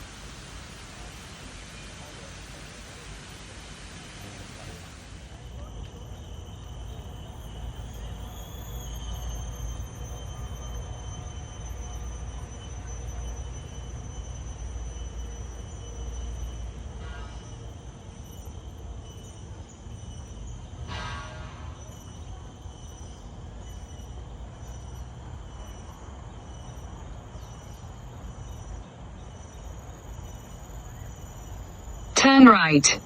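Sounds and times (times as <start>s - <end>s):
high-pitched insect drone: 5.3s - 20.7s, 21.9s - 32.1s.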